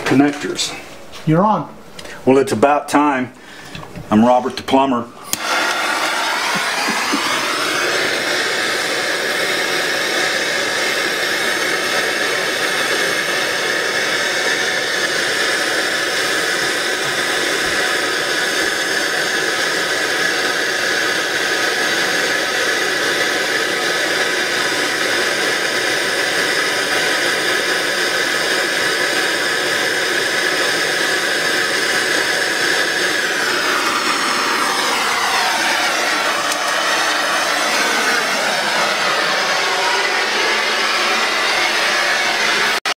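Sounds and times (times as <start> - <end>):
motor-driven machine whirring: 5.2 - 19.9, 29.7 - 42.8.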